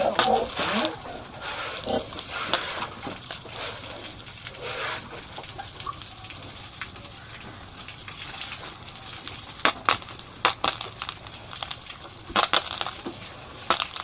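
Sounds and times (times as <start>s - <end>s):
pig grunting: 0.0s - 2.9s
pigs feeding: 0.0s - 7.5s
wet splashy feed noises: 0.0s - 14.0s.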